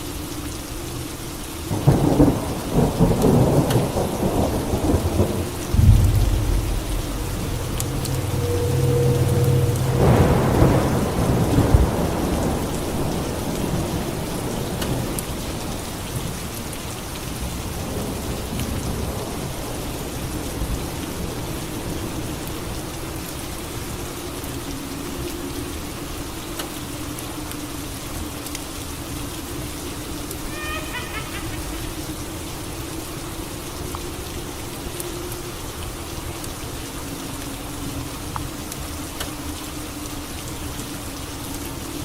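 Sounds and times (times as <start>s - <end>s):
steady rain: 0.0s - 42.0s
thunder rumbling: 1.7s - 15.4s, 30.4s - 32.6s.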